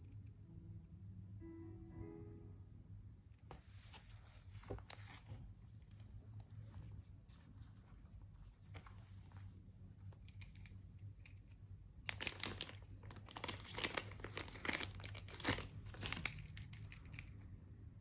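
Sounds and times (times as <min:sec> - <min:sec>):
paper crinkling and rustling: 0:03.8 - 0:10.2, 0:12.1 - 0:17.2.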